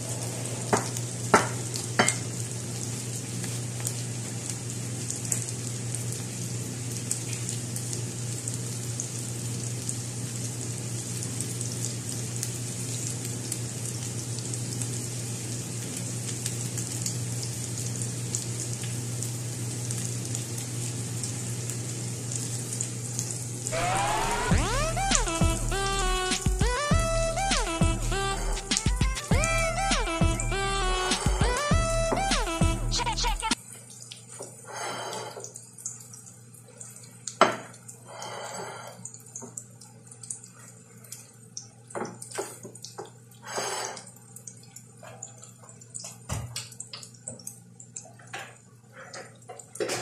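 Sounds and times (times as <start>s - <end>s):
patties sizzling in oil: 0.0s - 50.0s
low hum: 23.7s - 33.5s
music: 23.7s - 33.6s.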